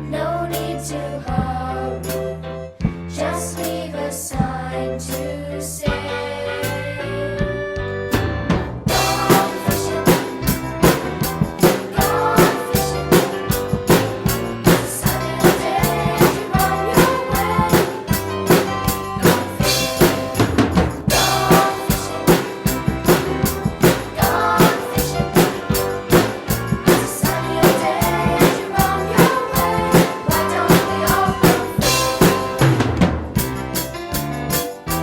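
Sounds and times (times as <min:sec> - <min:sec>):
instrumental backing track: 0:00.0 - 0:35.0
drum kit playing steady beat: 0:07.4 - 0:35.0.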